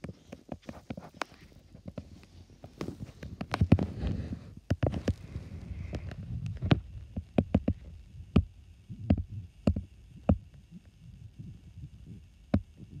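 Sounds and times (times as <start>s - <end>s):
sharp clicks and knocks: 5.9s - 10.5s.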